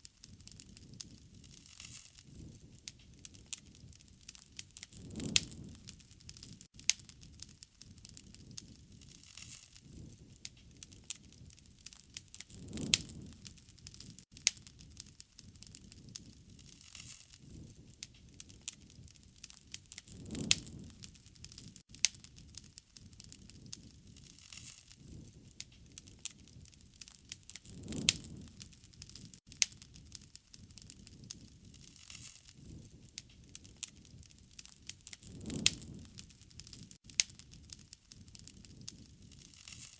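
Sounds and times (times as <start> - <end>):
wood fire crackling and popping: 0.0 - 39.9
low whoosh of flames: 0.1 - 39.9.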